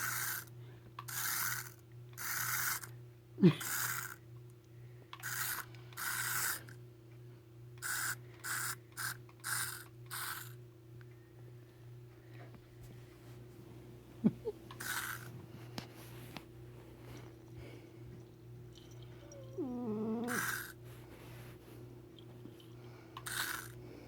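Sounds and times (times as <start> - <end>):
cat hissing: 19.3 - 20.8.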